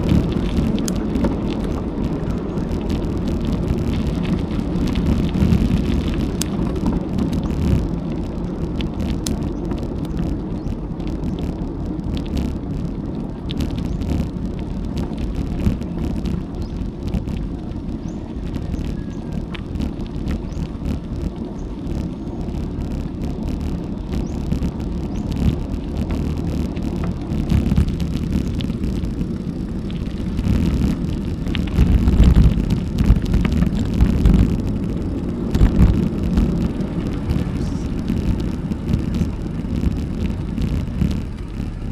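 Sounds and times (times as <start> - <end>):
bicycle tyre noise on road: 0.0 - 41.9
wind buffeting microphone: 0.0 - 41.9
small clicks: 0.1 - 17.5.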